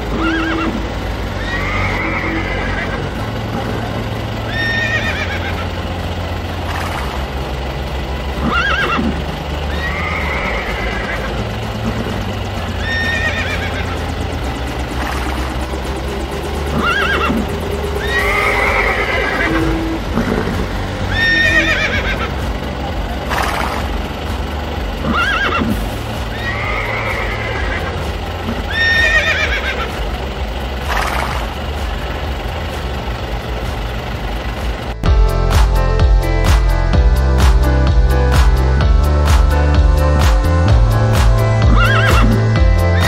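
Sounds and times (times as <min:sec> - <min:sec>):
steady low hum: 0:00.0 - 0:43.0
horse neighing and whinnying: 0:00.1 - 0:00.8, 0:01.4 - 0:03.1, 0:04.5 - 0:05.6, 0:08.4 - 0:09.1, 0:09.8 - 0:11.3, 0:12.8 - 0:13.9, 0:16.7 - 0:17.4, 0:18.0 - 0:20.5, 0:21.1 - 0:22.3, 0:25.0 - 0:28.0, 0:28.7 - 0:29.9, 0:41.7 - 0:42.4.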